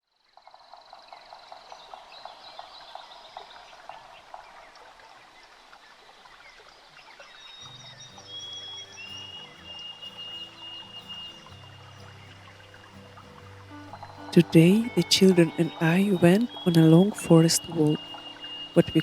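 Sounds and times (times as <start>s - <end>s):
birds chirping: 0.4s - 19.0s
music with low sustained notes: 7.7s - 19.0s
bird trilling: 13.6s - 19.0s.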